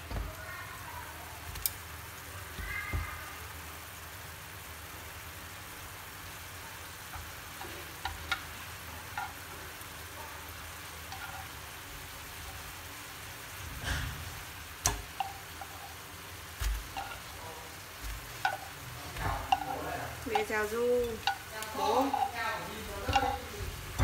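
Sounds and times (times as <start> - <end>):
food sizzling in a pan: 0.0 - 24.0
chopsticks knocking on pans: 7.1 - 9.9, 11.0 - 11.6, 14.8 - 24.0.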